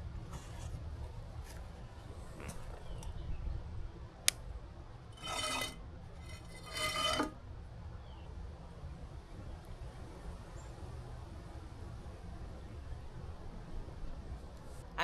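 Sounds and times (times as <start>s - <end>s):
cutlery scraping with squealing ring: 5.2s - 7.3s.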